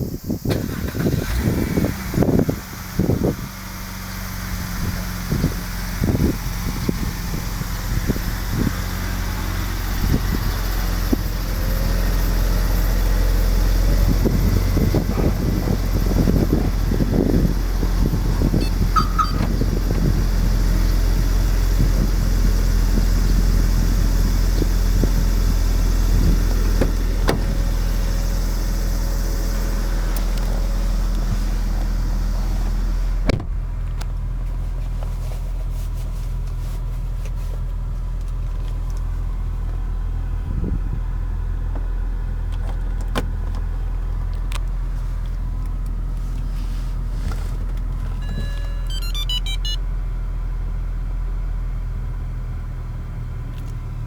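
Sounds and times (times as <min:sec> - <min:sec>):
car engine idling: 0:00.1 - 0:54.0
thump: 0:26.8 - 0:27.6, 0:33.3 - 0:33.6.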